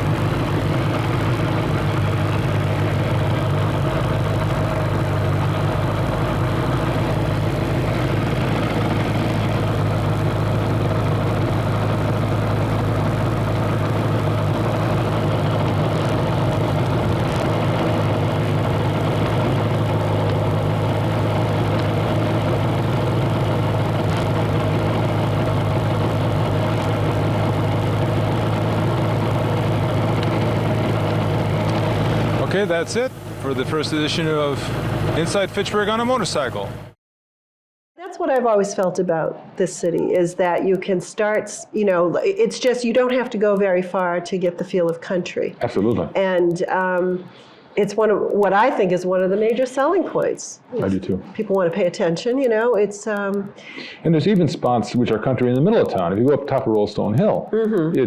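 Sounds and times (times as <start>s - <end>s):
motorcycle engine idling: 0.0s - 37.0s.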